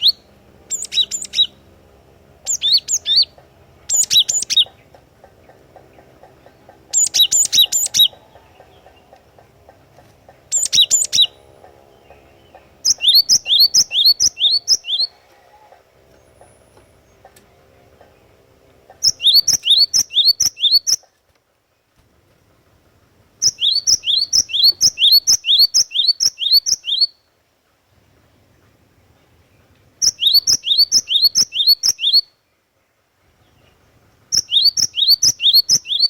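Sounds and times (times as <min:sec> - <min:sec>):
bird high rapid chirping: 0:00.0 - 0:01.8, 0:02.4 - 0:15.2, 0:18.0 - 0:21.1, 0:23.4 - 0:27.3, 0:28.5 - 0:32.4, 0:33.4 - 0:36.0
faint steady hum: 0:00.0 - 0:36.0.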